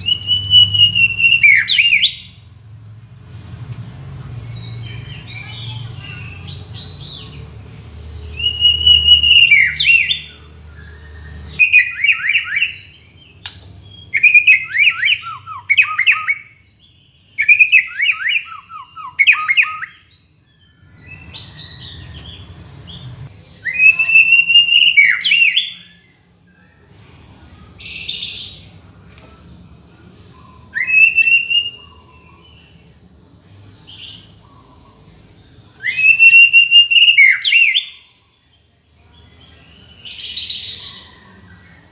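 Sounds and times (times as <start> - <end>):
bird singing whistled phrases: 0.0 - 2.4, 8.2 - 16.6, 17.3 - 22.4, 23.6 - 26.1, 30.7 - 32.7, 35.8 - 38.2.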